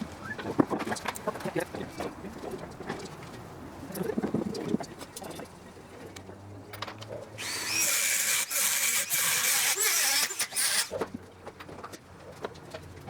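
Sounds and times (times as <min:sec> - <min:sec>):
power tool running with squeal: 0:07.4 - 0:10.9.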